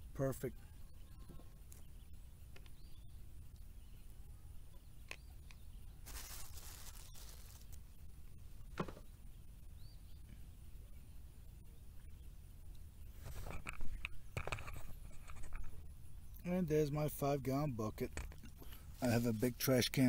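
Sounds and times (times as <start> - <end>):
faint bird chirps: 0.0 - 19.2
handling rustle: 6.0 - 7.8.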